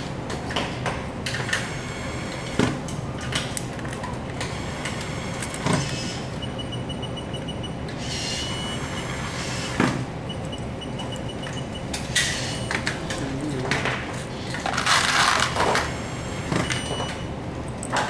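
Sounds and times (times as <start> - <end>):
steady low hum: 10.1 - 14.9.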